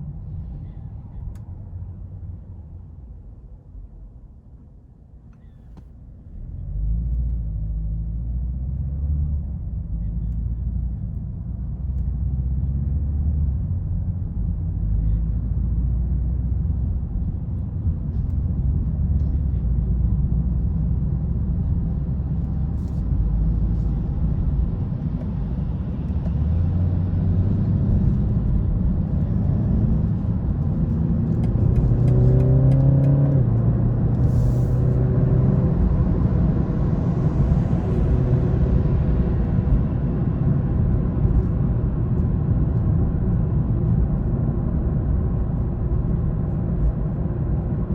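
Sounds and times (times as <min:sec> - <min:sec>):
road noise: 0:05.3 - 0:47.9
car engine accelerating: 0:06.4 - 0:47.9.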